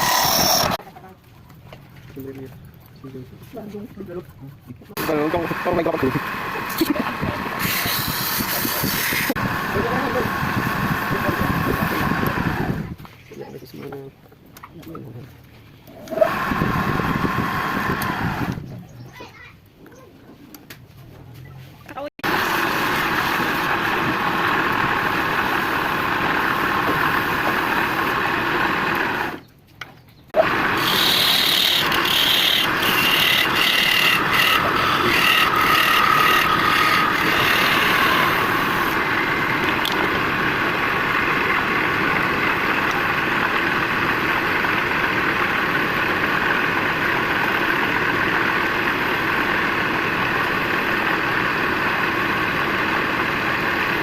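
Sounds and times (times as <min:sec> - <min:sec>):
tool scraping and squealing on wood: 0:00.0 - 0:00.8, 0:07.4 - 0:09.4, 0:30.4 - 0:39.0
woodturning lathe running: 0:00.0 - 0:00.8, 0:05.0 - 0:13.0, 0:16.0 - 0:18.6, 0:22.2 - 0:29.4, 0:30.4 - 0:54.0.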